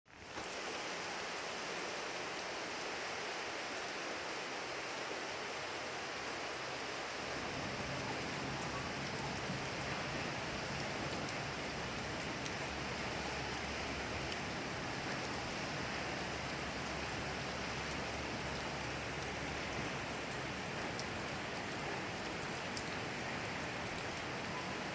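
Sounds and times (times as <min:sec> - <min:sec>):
steady rain falling: 0:00.1 - 0:24.9
raindrop ticks: 0:07.6 - 0:15.6, 0:17.8 - 0:24.9.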